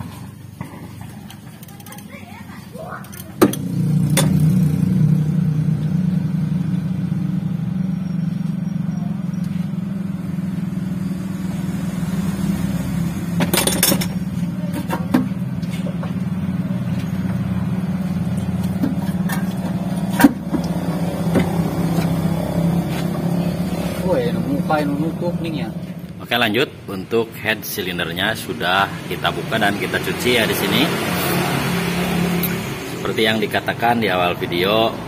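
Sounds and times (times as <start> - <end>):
engine idling: 0.0 - 26.3
metal tools clanking: 13.4 - 15.1.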